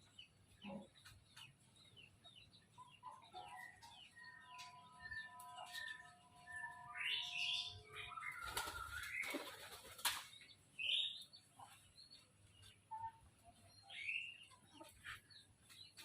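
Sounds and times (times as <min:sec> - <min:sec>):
pigeons flapping wings: 0:08.3 - 0:10.3.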